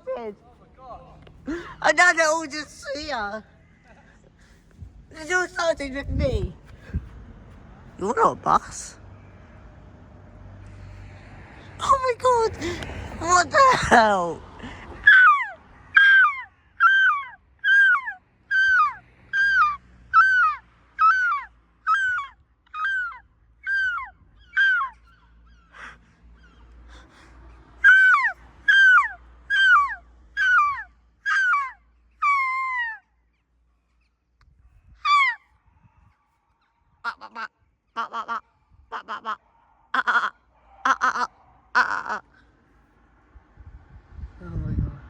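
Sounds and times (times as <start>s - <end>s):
seagull calling: 15.0s - 27.2s, 27.8s - 33.0s, 35.0s - 35.4s, 37.0s - 42.4s.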